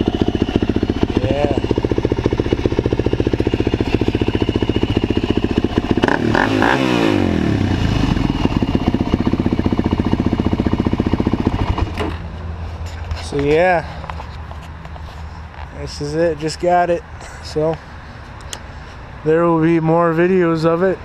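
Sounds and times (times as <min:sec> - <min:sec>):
quad engine idling: 0:00.0 - 0:12.9.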